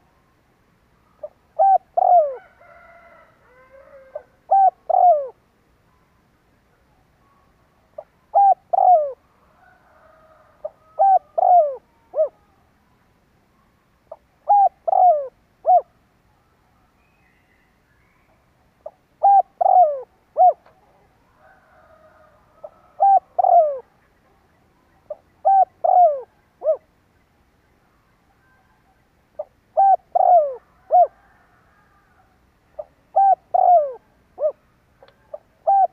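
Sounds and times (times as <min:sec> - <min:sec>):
dove cooing: 0:01.2 - 0:05.4, 0:08.0 - 0:12.6, 0:14.1 - 0:16.0, 0:18.8 - 0:24.4, 0:25.1 - 0:26.9, 0:28.4 - 0:35.9.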